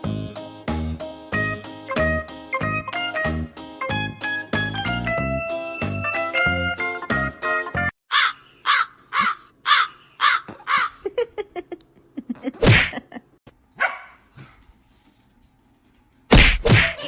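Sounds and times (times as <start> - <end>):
animal harsh calls: 8.1 - 11.0.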